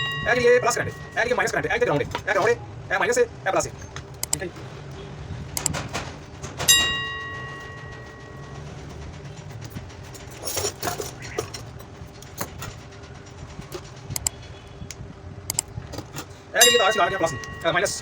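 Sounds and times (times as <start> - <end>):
sharp ringing metallic clink: 0.0 - 1.8, 16.6 - 18.0
metal tools clicking and rattling: 0.0 - 2.6, 5.5 - 14.5, 15.5 - 18.0.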